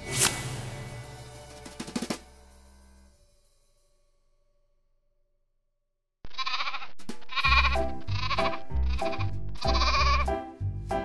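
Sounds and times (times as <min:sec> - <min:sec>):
sheep bleating: 0:06.3 - 0:10.3.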